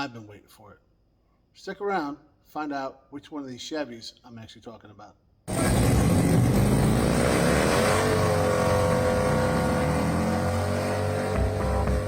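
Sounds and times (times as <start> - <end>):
engine starting and revving: 5.5 - 12.0.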